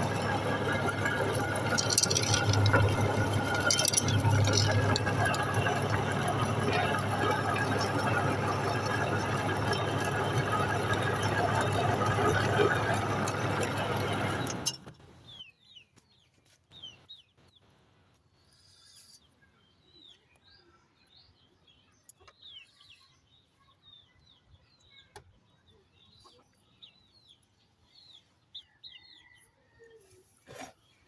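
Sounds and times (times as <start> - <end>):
electric meat grinder: 0.0 - 14.7
small birds chirping: 15.2 - 29.4.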